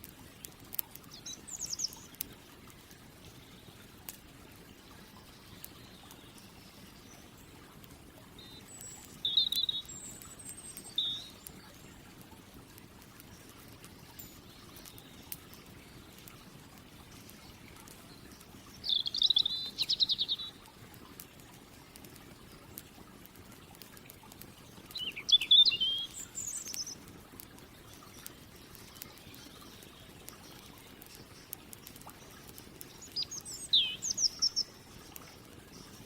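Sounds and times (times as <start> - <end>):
campfire crackling: 0.0 - 36.0
songbird warbling: 8.4 - 11.5, 18.8 - 20.6, 24.9 - 27.0, 32.8 - 36.0.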